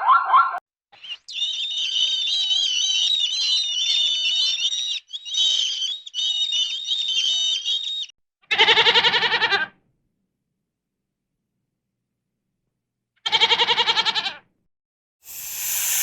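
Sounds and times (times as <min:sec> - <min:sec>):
goat bleating: 0:08.5 - 0:09.7, 0:13.3 - 0:14.4
high-pitched warbling calls: 0:15.3 - 0:16.0.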